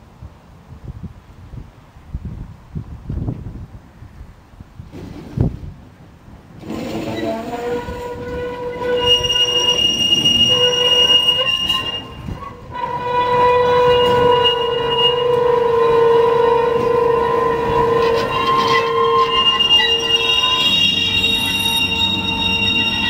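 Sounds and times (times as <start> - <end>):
tram wheels squealing on rails: 6.6 - 23.0.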